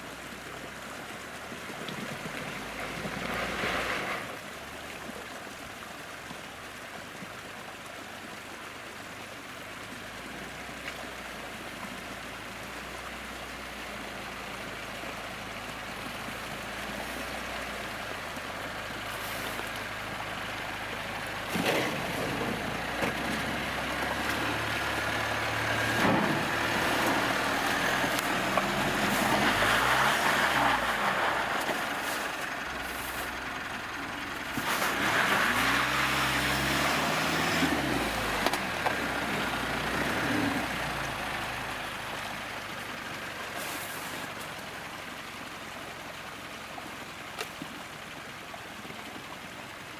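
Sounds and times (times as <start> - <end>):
engine running under load: 11.5 - 49.9
engine revving: 34.6 - 41.6.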